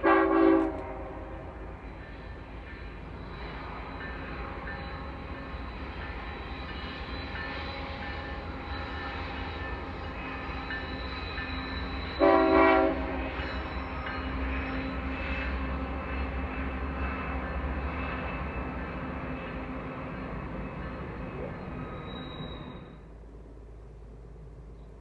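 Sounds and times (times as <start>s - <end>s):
train horn blast: 0.0s - 1.6s, 12.1s - 13.4s
train rumbling: 0.0s - 25.0s.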